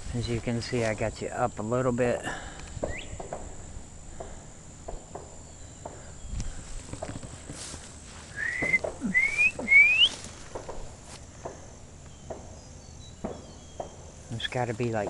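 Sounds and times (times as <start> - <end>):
rising whistled notes: 8.3 - 10.2.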